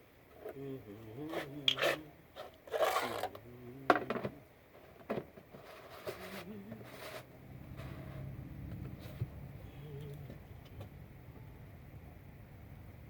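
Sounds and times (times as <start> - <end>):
short scraping rub: 5.5 - 9.3
faint voice: 9.6 - 10.4.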